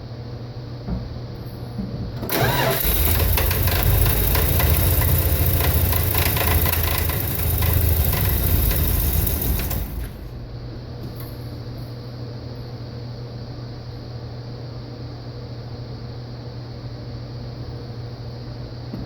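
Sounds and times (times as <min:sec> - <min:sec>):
engine idling roughly: 0:02.3 - 0:10.7
engine backfire rattle: 0:02.3 - 0:11.4.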